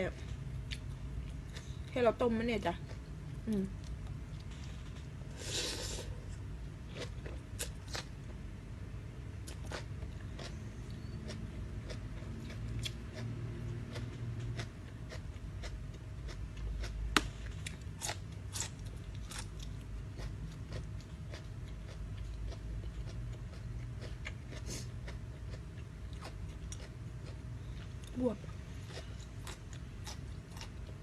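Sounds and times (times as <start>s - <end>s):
person chewing and crunching: 6.9s - 8.1s, 9.4s - 31.0s.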